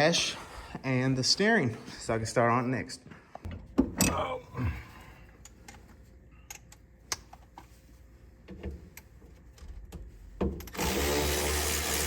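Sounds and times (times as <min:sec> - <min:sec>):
small electric motor running: 0:10.8 - 0:12.0.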